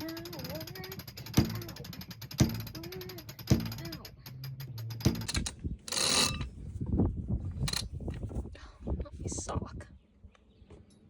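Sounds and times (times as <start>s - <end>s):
heavy winch clack: 0.0s - 6.5s
winch pawls clicking: 0.0s - 6.5s.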